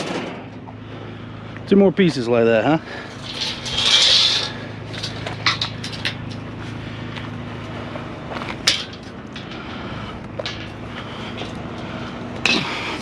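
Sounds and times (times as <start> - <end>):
steady low hum: 0.0 - 13.0
metal scraping: 2.8 - 6.9, 8.3 - 13.0
steel clanks and knocks: 3.0 - 6.4, 8.4 - 9.7, 10.3 - 11.6.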